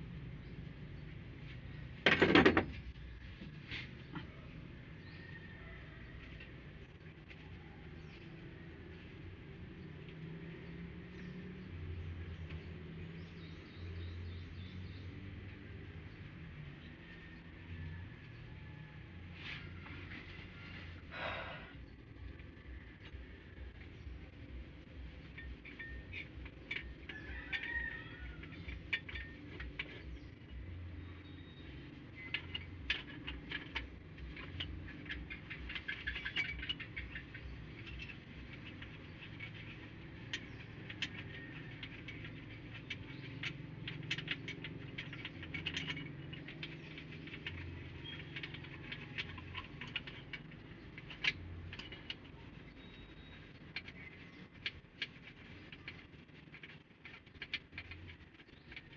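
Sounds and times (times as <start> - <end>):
hand tools tapping engine parts: 0.7 - 4.4, 22.6 - 58.9.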